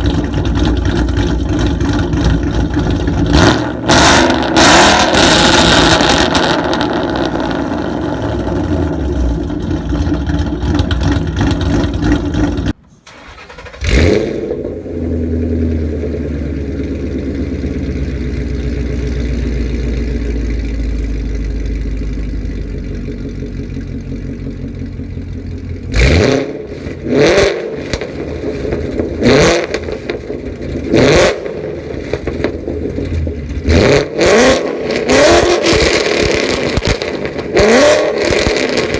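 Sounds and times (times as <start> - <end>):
car engine starting and idling: 0.0 - 38.9.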